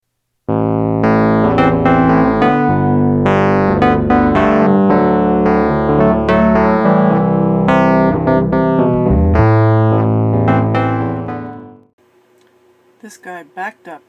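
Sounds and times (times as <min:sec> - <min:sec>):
electric keyboard playing chords: 0:00.5 - 0:12.0.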